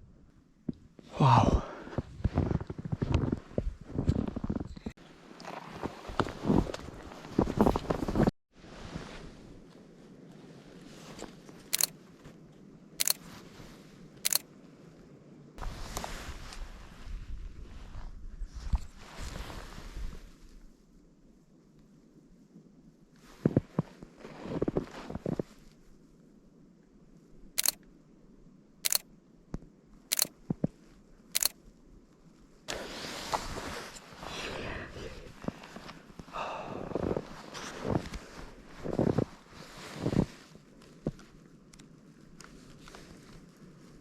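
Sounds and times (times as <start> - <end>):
faint clicks: 11.7 - 11.9, 14.2 - 14.4, 27.6 - 27.9, 28.8 - 30.4, 31.4 - 31.6
camera shutter clicks: 13.0 - 13.2, 28.8 - 29.0, 30.1 - 30.3, 31.4 - 31.6
camera shutter firing: 30.1 - 30.3.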